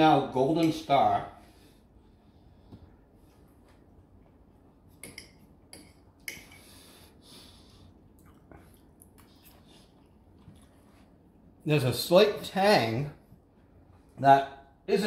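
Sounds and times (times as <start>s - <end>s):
man chewing food: 2.5s - 11.5s
breathing through the nose: 6.5s - 8.0s.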